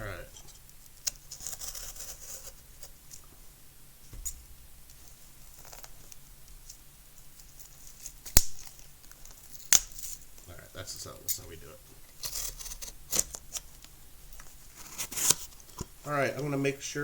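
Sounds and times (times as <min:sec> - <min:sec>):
packing tape peeled off cardboard: 0:00.8 - 0:03.0, 0:12.1 - 0:15.9.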